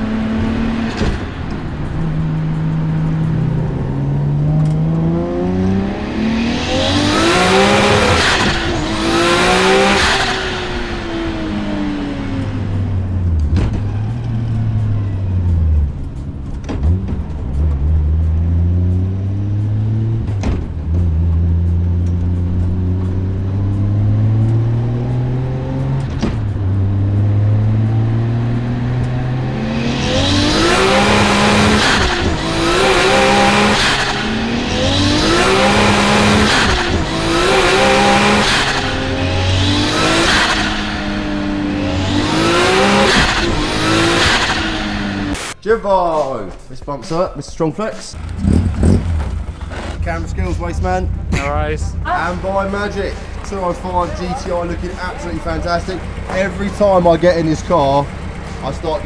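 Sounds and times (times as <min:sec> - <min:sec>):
car engine revving: 0:00.0 - 0:45.6, 0:48.0 - 0:59.0
tyres screeching: 0:29.1 - 0:45.6, 0:47.9 - 0:59.0.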